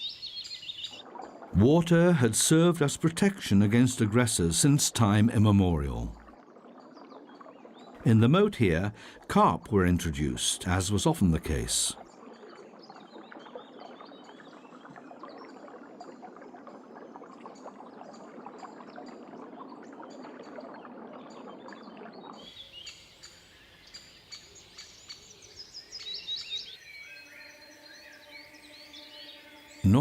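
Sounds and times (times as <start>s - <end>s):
small birds chirping: 0.0s - 1.0s
hissing crackling background noise: 1.0s - 22.5s.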